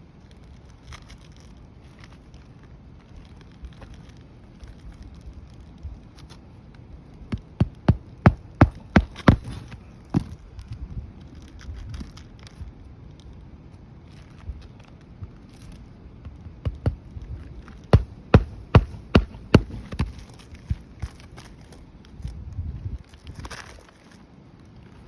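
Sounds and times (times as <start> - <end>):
hammer driving nails: 7.4 - 10.3, 16.7 - 17.0, 17.9 - 20.2
shingles scraping and rustling: 7.4 - 10.4, 17.7 - 21.8.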